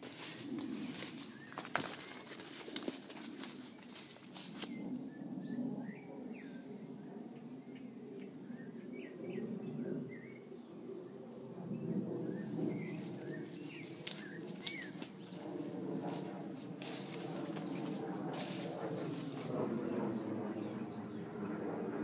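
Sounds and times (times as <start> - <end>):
handling and walking noise: 0.0 - 5.0, 12.7 - 19.8
small birds chirping: 0.0 - 5.3, 11.8 - 21.4.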